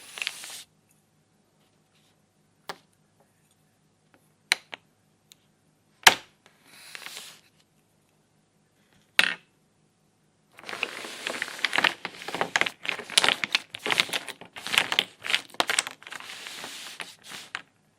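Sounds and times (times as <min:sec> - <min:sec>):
plastic pieces being handled: 0:10.6 - 0:17.7.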